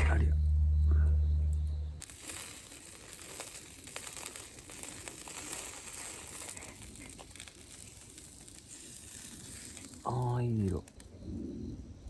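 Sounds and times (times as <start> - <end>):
chicken sizzling over charcoal: 2.0 - 11.0.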